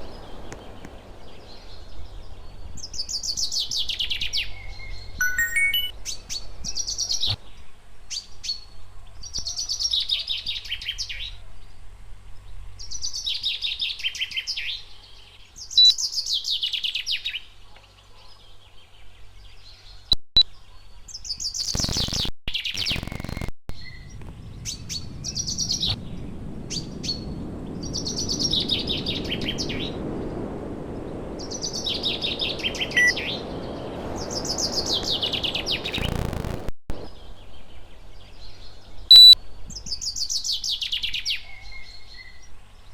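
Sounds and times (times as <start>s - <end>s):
songbird singing: 0.0s - 7.7s, 12.9s - 21.8s, 23.8s - 36.1s, 37.0s - 42.9s
steady rushing noise: 24.1s - 37.2s.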